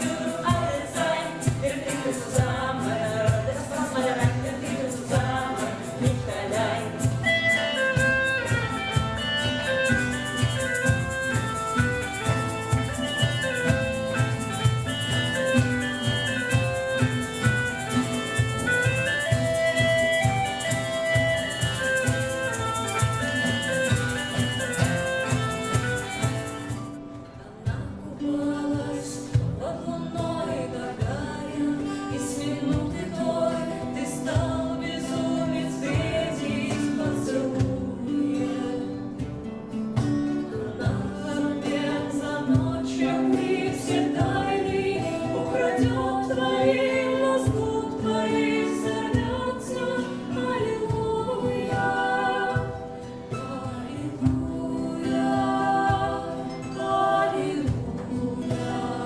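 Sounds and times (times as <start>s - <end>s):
shaker rattling: 0.0s - 27.0s
person singing with acoustic band: 0.0s - 59.0s
fiddle tune: 7.2s - 27.1s.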